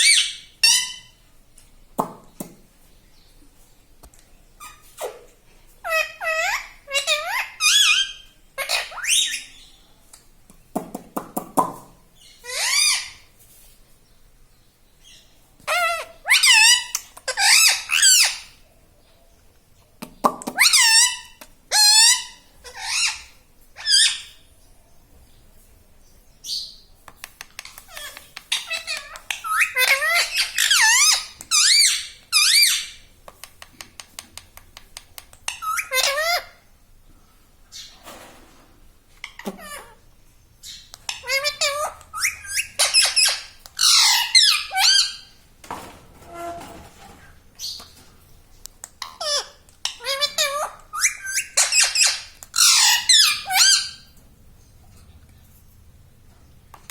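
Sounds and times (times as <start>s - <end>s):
parrot calling: 0.0s - 1.2s, 4.6s - 9.8s, 12.2s - 13.3s, 15.1s - 18.6s, 20.4s - 24.4s, 27.6s - 33.1s, 35.4s - 36.7s, 39.2s - 40.0s, 40.6s - 45.4s, 49.0s - 54.2s.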